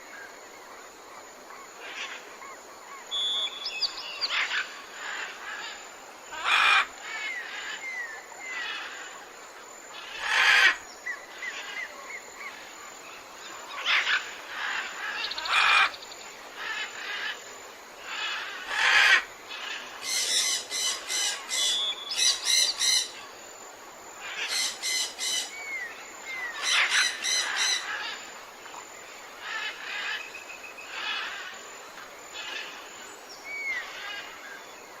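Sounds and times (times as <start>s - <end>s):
birds calling and chirping: 1.8s - 9.1s, 18.0s - 23.4s, 24.2s - 28.8s, 29.4s - 34.9s.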